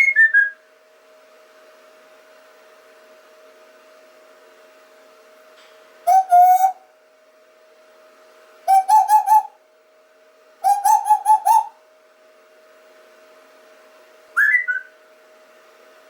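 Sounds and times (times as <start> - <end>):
faint steady hum: 0.0 - 16.0
loud whistle-like calls: 6.1 - 6.8, 8.7 - 9.5, 10.6 - 11.8, 14.4 - 15.0.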